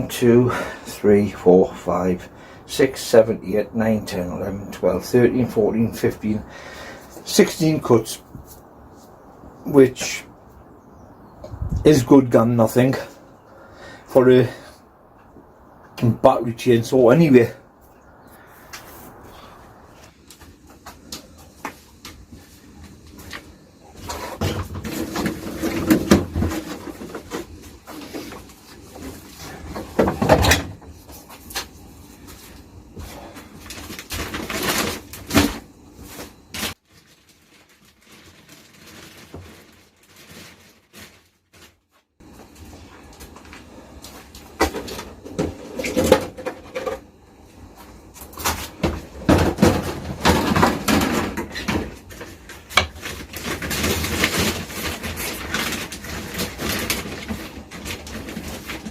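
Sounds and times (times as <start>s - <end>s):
objects being handled and set down: 47.8s - 58.9s.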